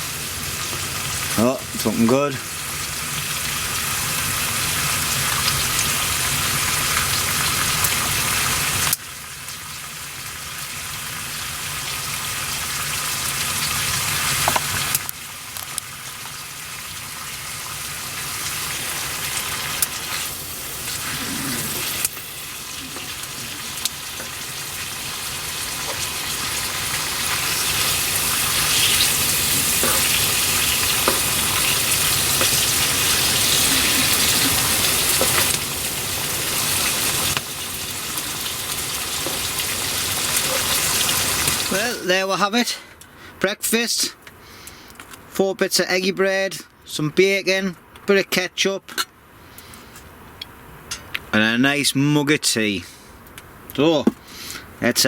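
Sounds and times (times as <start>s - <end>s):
bacon frying in a pan: 0.0s - 42.7s.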